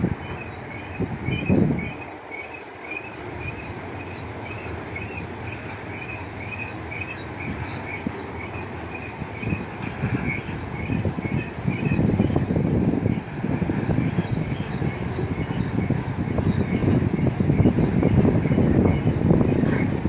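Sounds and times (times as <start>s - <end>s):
freight train rumbling past: 0.0s - 20.0s
short high-pitched squeak: 19.6s - 20.0s.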